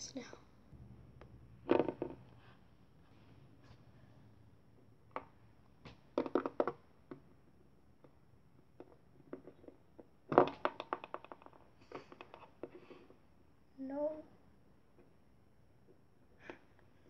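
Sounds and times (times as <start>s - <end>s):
plastic toys clicking and tapping: 8.0s - 13.1s.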